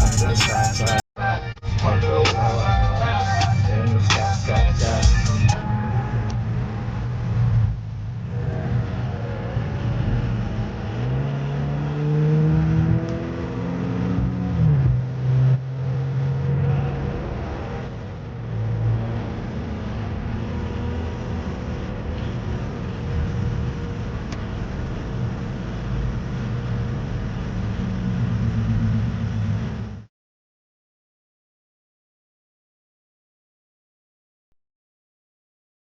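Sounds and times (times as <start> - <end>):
car engine accelerating: 1.6 - 30.1
road rumble inside car: 1.8 - 30.1.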